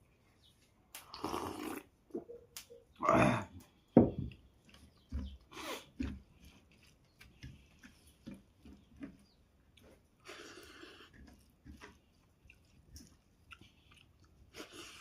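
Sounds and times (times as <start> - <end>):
chewing and mouth clicks: 3.6 - 15.0.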